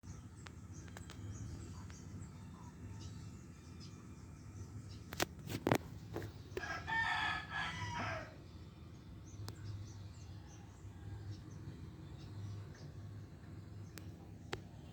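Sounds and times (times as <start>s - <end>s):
low steady hum: 0.0s - 14.9s
rooster crowing: 6.6s - 8.4s.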